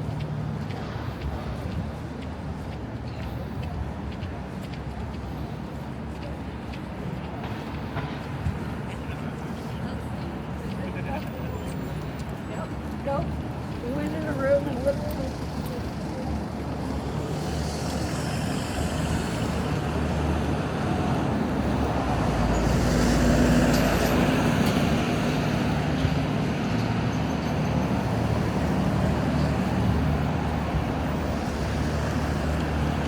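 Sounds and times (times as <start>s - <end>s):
city street traffic: 0.0s - 33.0s
heavy vehicle engine rumble: 13.4s - 33.0s.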